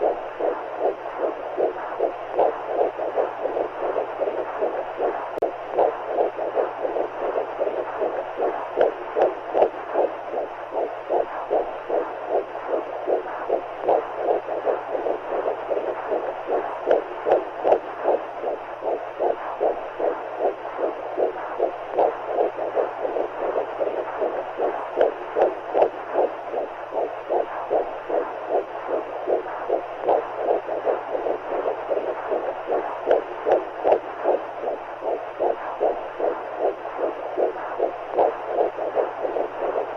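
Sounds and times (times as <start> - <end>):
faint low hum: 0.0 - 39.9
heartbeat: 0.0 - 39.9.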